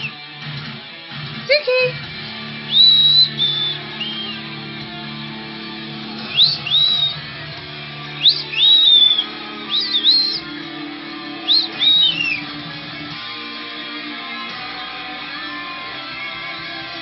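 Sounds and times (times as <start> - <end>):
guitar music: 0.0 - 17.0
pet bird whistling: 2.7 - 4.4, 6.3 - 7.2, 8.2 - 10.5, 11.4 - 12.4.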